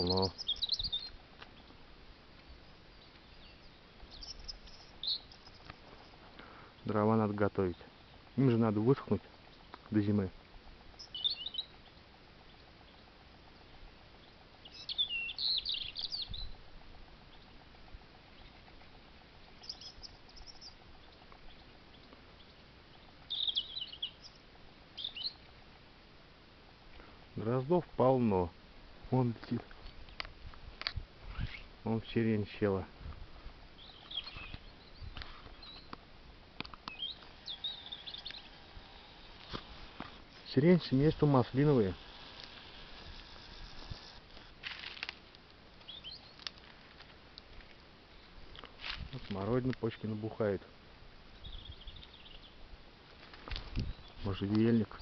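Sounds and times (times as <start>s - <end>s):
robin warbling song: 0.0s - 1.8s, 2.4s - 25.7s, 33.7s - 44.1s, 45.8s - 46.5s, 51.3s - 52.7s.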